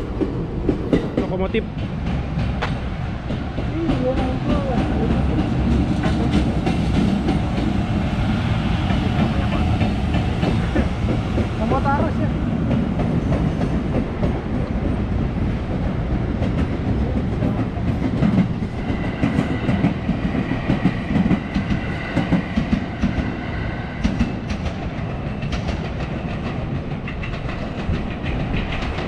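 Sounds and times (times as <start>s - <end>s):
train rumble: 0.0s - 29.0s
wheels clacking over rail joints: 8.8s - 23.4s, 24.0s - 29.0s.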